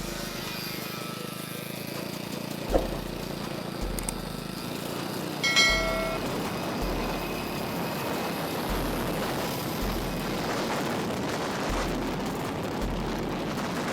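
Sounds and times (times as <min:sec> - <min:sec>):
vehicle running rushing noise: 0:01.7 - 0:13.9
deep low rumble: 0:05.5 - 0:07.5, 0:08.7 - 0:13.9.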